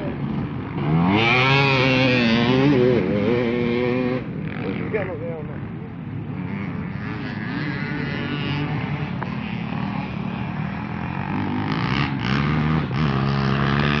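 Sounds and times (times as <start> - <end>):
motocross bike engines revving: 0.0 - 14.0.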